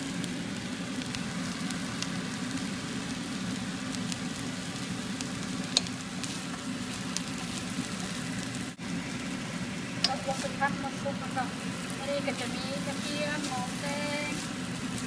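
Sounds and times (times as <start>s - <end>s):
food sizzling in oil: 0.0s - 15.0s
small clicks of spatula: 5.7s - 6.0s.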